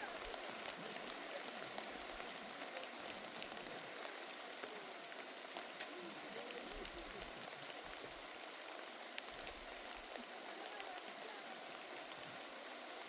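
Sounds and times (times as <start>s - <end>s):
heavy rain falling: 0.0s - 13.0s
raindrop ticks: 0.0s - 13.0s.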